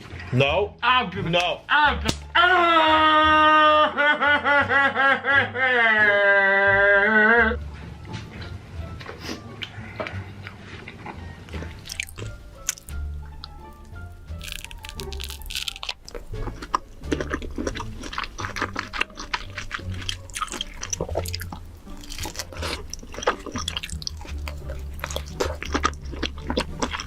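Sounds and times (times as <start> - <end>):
quiet music: 0.0 - 27.0
wet smacking sounds: 9.0 - 27.0
person chewing and crunching: 9.1 - 27.0.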